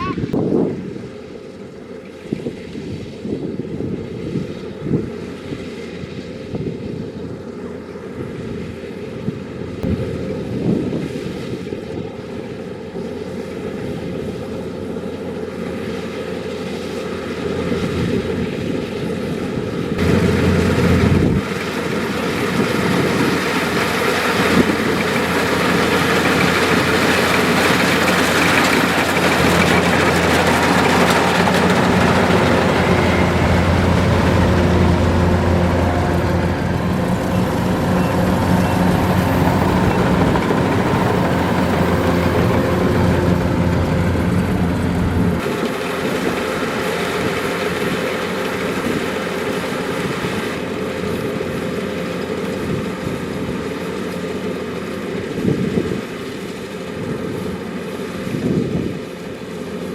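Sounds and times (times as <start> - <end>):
combine harvester diesel engine drone: 0.0 - 59.9.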